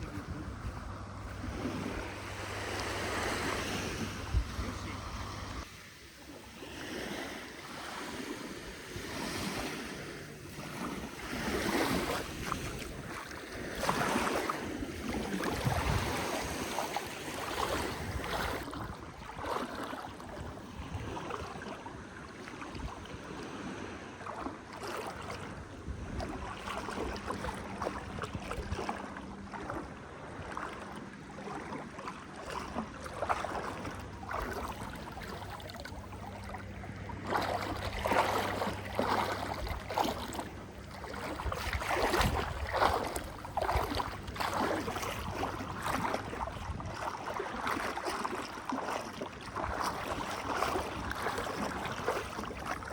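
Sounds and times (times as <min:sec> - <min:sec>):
wind buffeting microphone: 0:00.0 - 0:05.8, 0:08.0 - 0:21.8, 0:25.4 - 0:29.7, 0:37.0 - 0:48.0
sea waves washing onto beach: 0:00.0 - 0:52.9.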